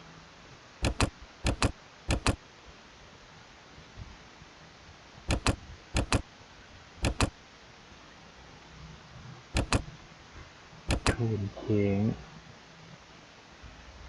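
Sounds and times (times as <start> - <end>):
computer mouse double clicks: 0.8 - 2.4, 5.3 - 6.3, 7.0 - 7.4, 9.6 - 9.9, 10.9 - 11.2.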